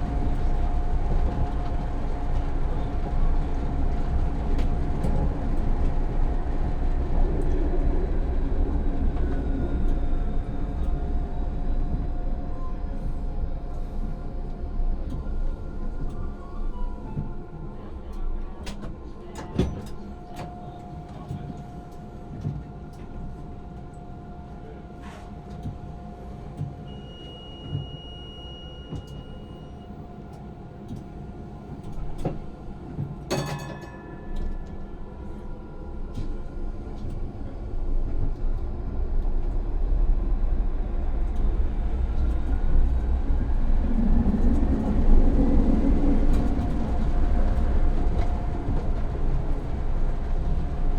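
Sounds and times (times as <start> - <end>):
wheel-on-rail rumble: 0.0 - 23.0, 30.8 - 50.9
sharp ringing clunk: 33.3 - 34.4.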